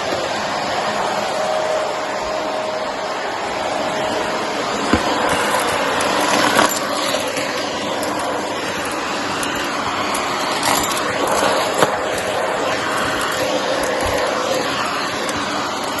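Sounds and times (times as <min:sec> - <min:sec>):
vacuum cleaner running: 0:00.0 - 0:16.0
cardboard bits rattling in vacuum: 0:04.9 - 0:16.0.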